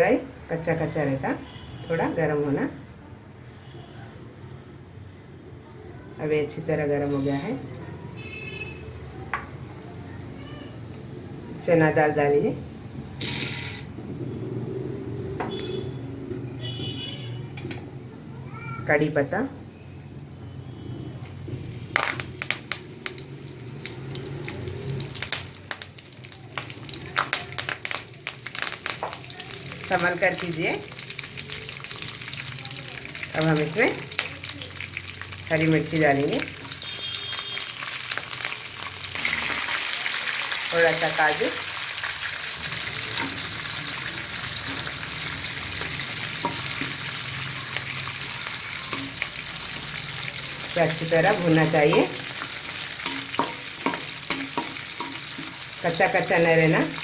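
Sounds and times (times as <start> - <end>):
leaves sizzling in hot oil: 7.0 - 7.6, 21.6 - 57.0
oil popping and crackling: 21.6 - 57.0.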